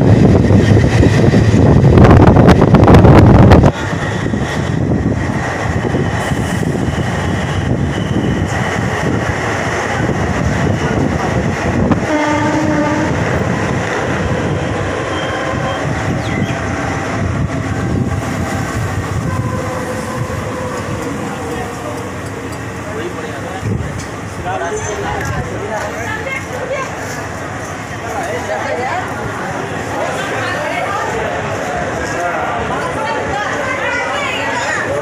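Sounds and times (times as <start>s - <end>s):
train running noise: 0.0s - 35.0s
train horn: 12.0s - 13.4s, 15.0s - 15.9s, 19.1s - 20.9s.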